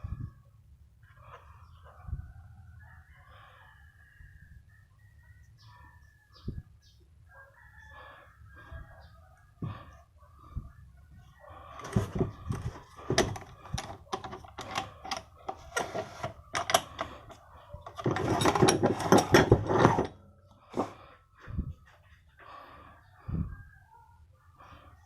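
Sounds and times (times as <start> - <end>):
metal clicks and knocks: 11.8 - 20.2.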